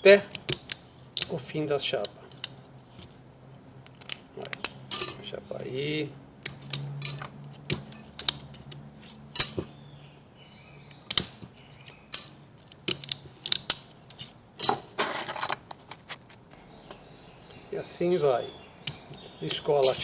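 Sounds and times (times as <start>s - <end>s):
metal sheets clicking and clinking: 12.1s - 16.4s.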